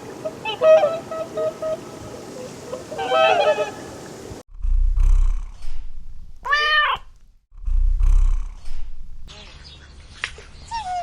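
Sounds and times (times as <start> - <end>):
geese honking: 0.2 - 4.0
cat meowing: 6.4 - 7.1.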